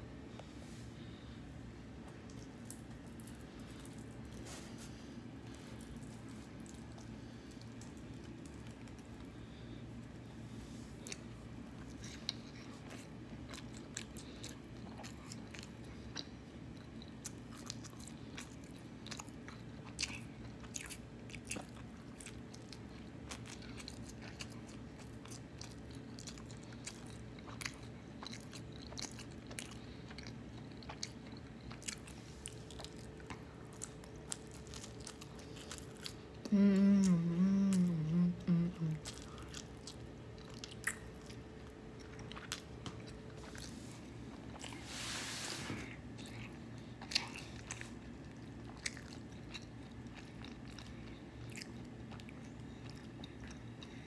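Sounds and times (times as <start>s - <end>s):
person chewing food: 0.3s - 45.1s, 45.8s - 54.0s
loud wobbling hummed voice: 36.4s - 39.4s.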